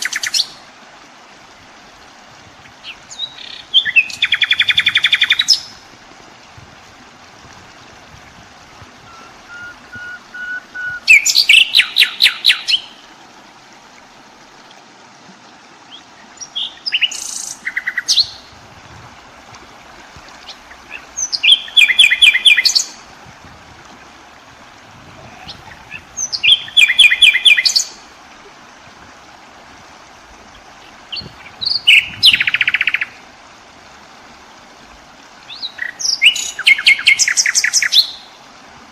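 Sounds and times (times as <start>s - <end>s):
faint steady hiss: 0.0s - 38.9s
songbird singing: 2.6s - 5.8s, 9.0s - 13.1s, 15.8s - 18.6s, 20.3s - 23.1s, 25.2s - 28.1s, 30.5s - 33.2s, 35.4s - 38.4s.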